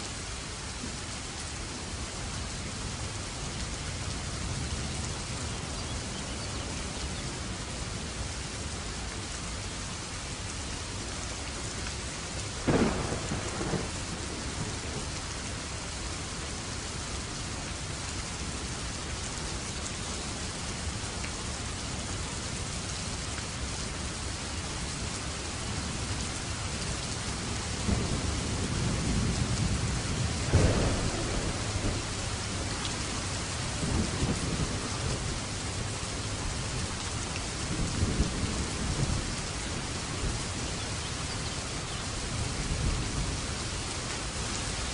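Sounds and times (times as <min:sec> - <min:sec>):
heavy rain: 0:00.0 - 0:44.9
thunder rumbling and cracking: 0:12.6 - 0:15.1, 0:27.8 - 0:36.0, 0:37.4 - 0:39.4
sharp thunderclap: 0:12.7 - 0:14.8, 0:27.9 - 0:32.4.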